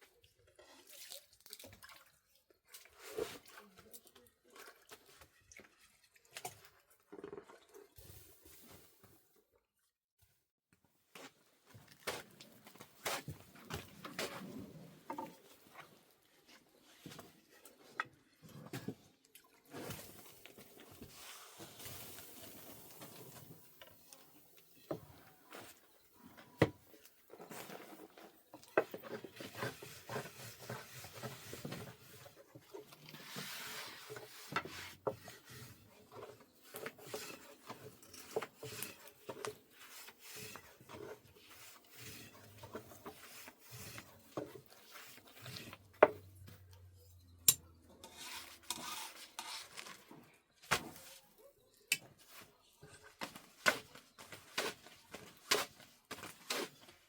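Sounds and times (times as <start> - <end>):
rubbing and scraping: 27.3 - 46.4, 48.0 - 50.2.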